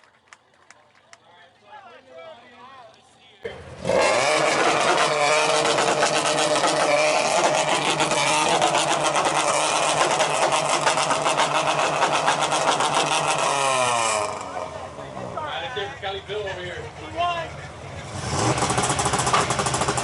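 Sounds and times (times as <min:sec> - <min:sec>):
car engine revving loud exhaust: 0:03.5 - 0:20.0.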